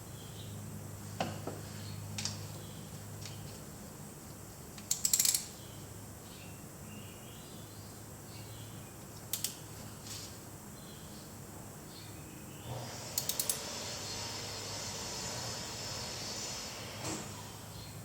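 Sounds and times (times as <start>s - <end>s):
ratchet clicks: 4.8s - 5.6s, 9.3s - 9.6s, 13.0s - 13.8s.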